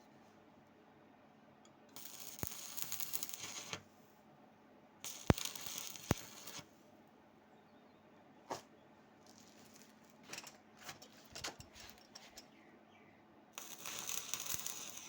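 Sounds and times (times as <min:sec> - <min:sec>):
welding arc crackle: 0:01.9 - 0:03.8, 0:05.0 - 0:06.7, 0:09.3 - 0:10.0, 0:13.6 - 0:15.0.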